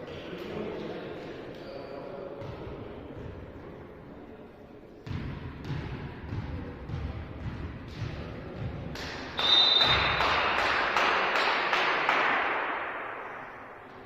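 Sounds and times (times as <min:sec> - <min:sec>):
volleyball bouncing on floor: 0:05.0 - 0:10.7
rhythmic clapping: 0:08.9 - 0:13.0
short whistle blast: 0:09.4 - 0:10.1.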